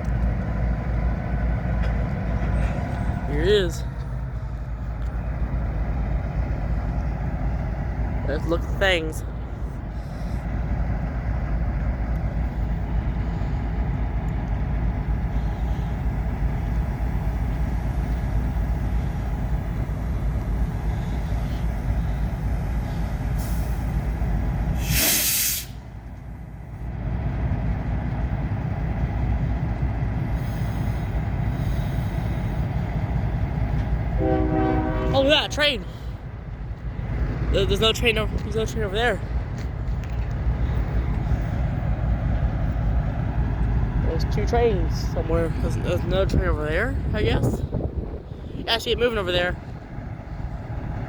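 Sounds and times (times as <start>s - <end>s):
train cars rumbling: 0.0s - 51.0s
short sharp hiss: 24.8s - 25.8s.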